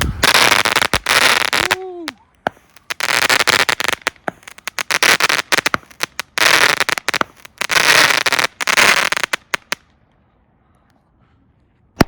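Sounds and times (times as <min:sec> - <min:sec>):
firework shot reports: 0:00.0 - 0:01.0
firework crackling bursts: 0:00.0 - 0:09.9.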